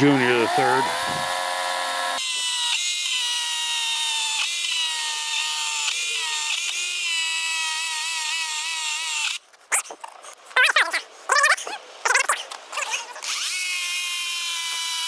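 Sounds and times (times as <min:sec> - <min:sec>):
electric chainsaw cutting log: 0:00.0 - 0:09.4, 0:12.2 - 0:15.0.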